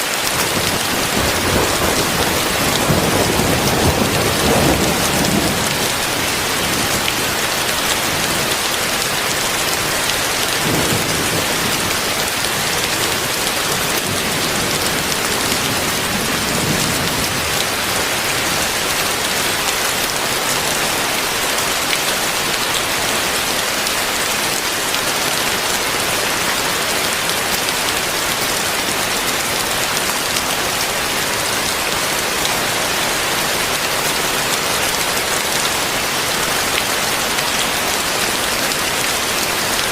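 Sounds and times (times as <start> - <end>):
heavy rain: 0.0 - 39.9
thunder rumbles: 0.3 - 8.5, 10.1 - 18.7.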